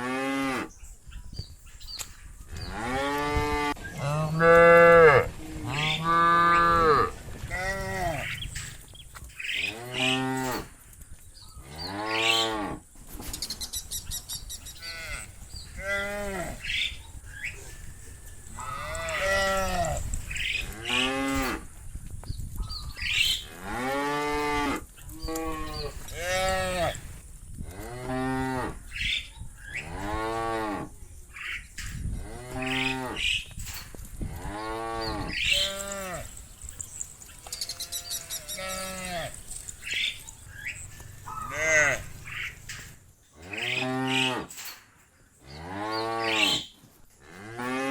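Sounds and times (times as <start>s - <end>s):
cows mooing: 2.6s - 8.6s, 9.6s - 10.7s, 14.8s - 16.9s, 18.5s - 20.0s, 20.6s - 21.7s, 32.1s - 33.4s, 34.3s - 36.4s, 37.4s - 44.6s, 45.4s - 47.9s.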